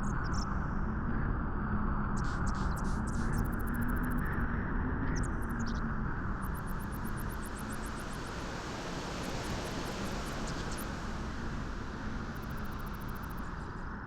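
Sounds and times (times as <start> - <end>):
steady wind blowing: 5.9 - 14.0.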